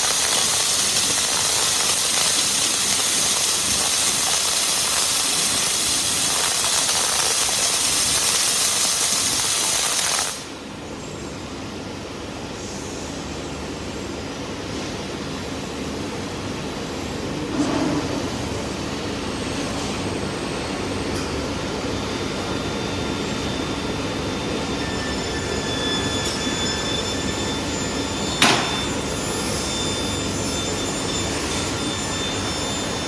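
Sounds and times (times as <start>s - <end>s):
welding hiss: 0.0s - 10.6s
faint high whine: 19.3s - 33.0s.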